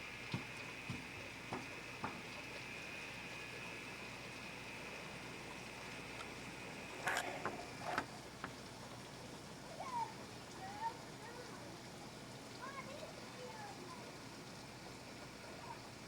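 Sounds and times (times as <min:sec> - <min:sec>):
heavy rain hissing: 0:02.7 - 0:08.4.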